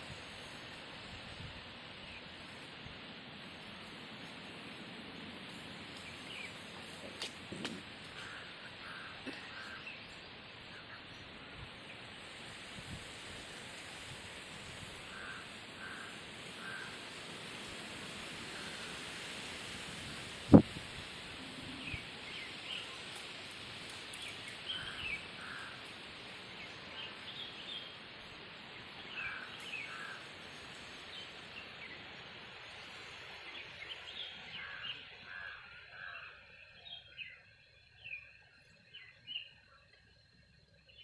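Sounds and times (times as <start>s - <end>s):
background hiss: 0.0s - 41.0s
birds chirping: 5.5s - 12.2s, 21.4s - 41.0s.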